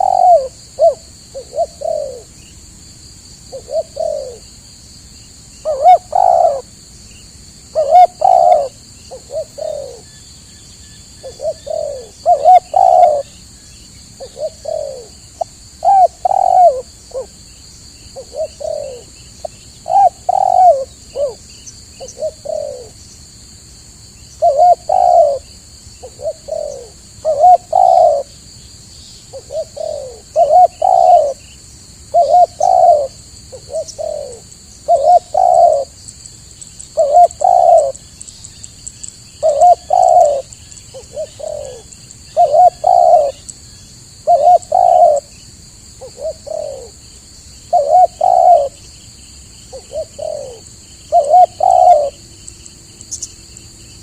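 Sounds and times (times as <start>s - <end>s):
doves cooing: 0.0s - 2.4s, 3.5s - 4.5s, 5.6s - 6.7s, 7.7s - 10.1s, 11.2s - 13.4s, 14.2s - 17.4s, 18.1s - 23.0s, 24.3s - 28.3s, 29.3s - 31.5s, 32.1s - 36.0s, 36.9s - 38.0s, 39.4s - 43.5s, 44.2s - 45.4s, 46.0s - 47.0s, 47.7s - 48.9s, 49.7s - 52.2s.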